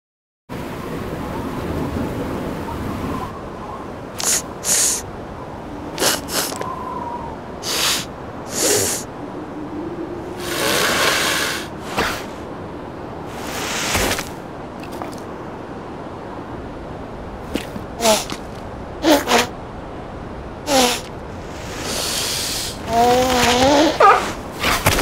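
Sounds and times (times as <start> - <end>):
faint steady hiss: 0.6 - 25.0
cartoon seal sniffing and snorting: 4.2 - 5.0, 6.0 - 6.6, 7.6 - 9.1, 10.4 - 12.4, 18.0 - 18.4, 19.0 - 19.5, 20.7 - 25.0.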